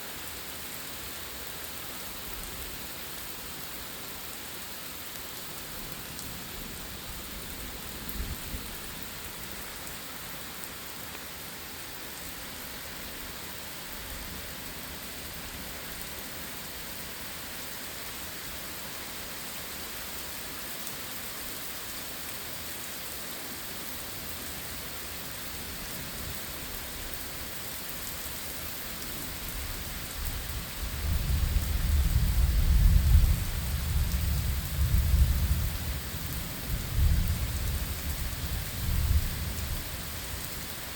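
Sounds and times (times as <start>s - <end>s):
steady rain: 0.0s - 40.9s.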